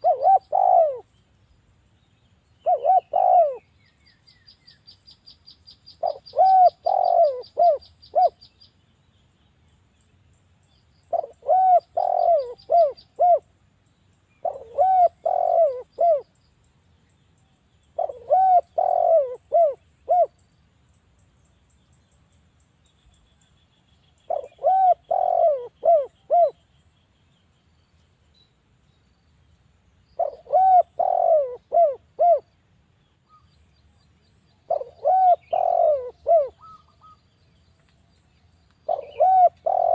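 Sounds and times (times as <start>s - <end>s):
dove cooing: 0.0s - 1.1s, 2.6s - 3.7s, 6.0s - 8.4s, 11.1s - 13.5s, 14.4s - 16.3s, 18.0s - 20.4s, 24.3s - 26.6s, 30.2s - 32.5s, 34.7s - 37.2s, 38.8s - 39.9s
small bird chirping trill: 0.0s - 29.3s, 29.9s - 39.9s.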